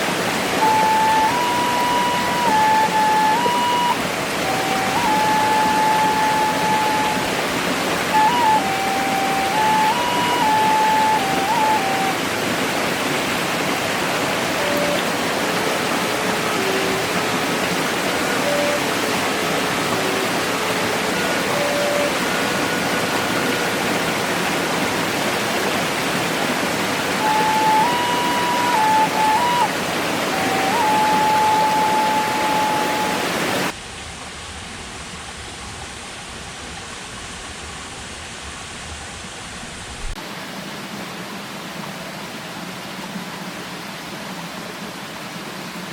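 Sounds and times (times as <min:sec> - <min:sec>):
rushing water hiss: 0:00.0 - 0:45.9
faint slow melody: 0:00.4 - 0:12.4, 0:14.3 - 0:24.8, 0:27.0 - 0:33.8.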